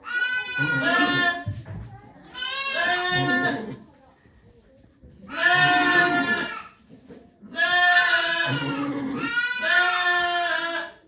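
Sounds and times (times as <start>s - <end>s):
goat bleating: 0.0s - 1.5s, 2.3s - 3.8s, 5.3s - 6.8s, 7.5s - 11.0s.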